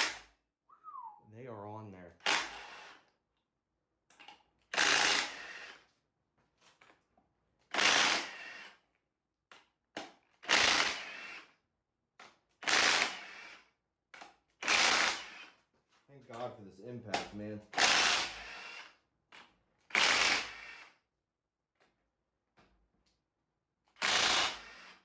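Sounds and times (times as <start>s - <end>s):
clicks of tools and parts: 4.1s - 4.5s
impact wrench bursts: 4.7s - 5.8s, 7.7s - 8.6s, 10.5s - 11.4s, 12.6s - 13.6s, 14.6s - 15.5s, 17.7s - 18.9s, 19.9s - 20.9s, 24.0s - 25.0s.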